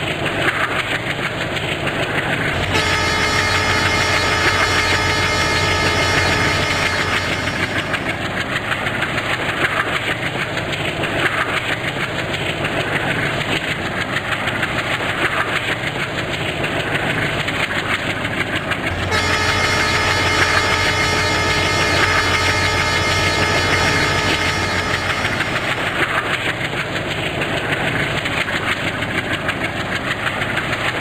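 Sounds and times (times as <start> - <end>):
steady hum: 2.4 - 9.0, 18.7 - 26.4.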